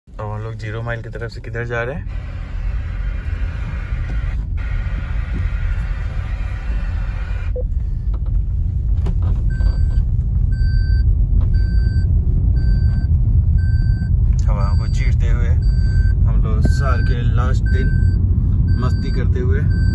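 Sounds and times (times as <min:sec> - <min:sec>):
road and wind noise in car: 0:00.1 - 0:19.9
short electronic beep: 0:11.6 - 0:19.9.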